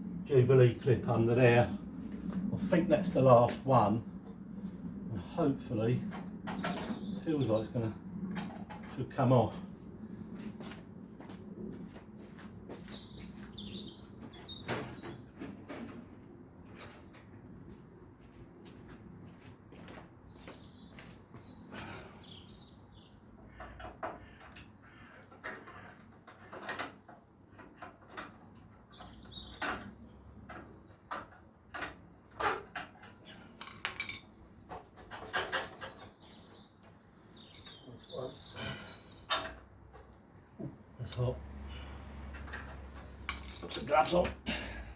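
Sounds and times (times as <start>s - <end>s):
metallic clinks and knocks: 42.3s - 43.8s.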